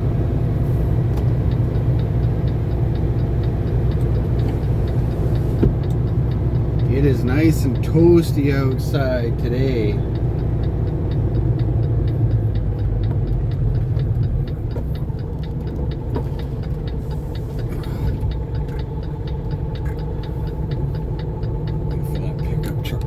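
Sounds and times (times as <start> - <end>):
diesel truck engine idling: 0.0 - 23.0
turn signal clicking: 0.0 - 23.0.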